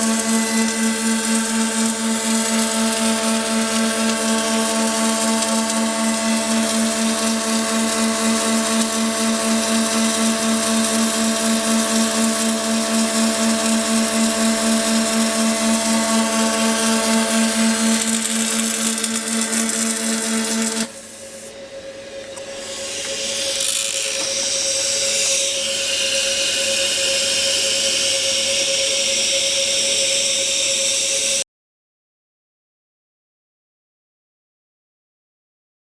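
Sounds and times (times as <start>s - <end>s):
welding machine humming: 0.0s - 21.5s.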